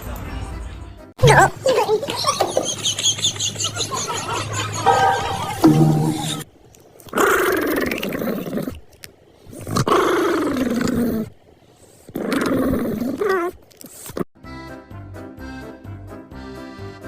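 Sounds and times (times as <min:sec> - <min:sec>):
animal calling with falling pitch: 0:02.0 - 0:06.4.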